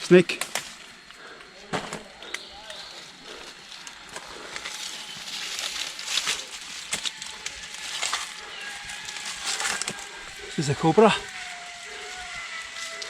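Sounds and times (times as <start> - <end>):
twigs snapping: 0.3 - 10.6
footsteps crunching through leaves: 1.6 - 13.0.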